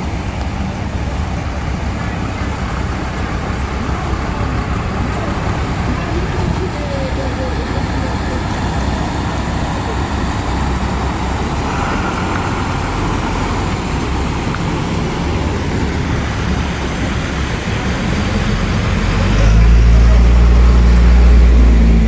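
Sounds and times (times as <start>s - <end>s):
traffic noise: 0.0s - 22.0s
vehicle engine passing close: 0.0s - 22.0s.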